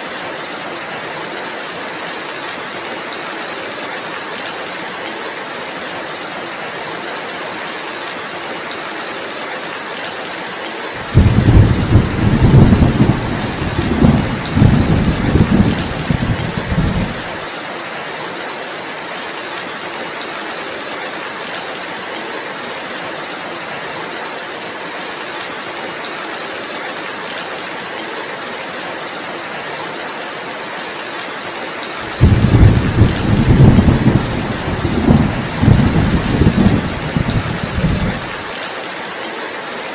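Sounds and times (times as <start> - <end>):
heavy rain: 0.0 - 39.9
thunder rumbling: 11.0 - 17.4, 32.1 - 38.4.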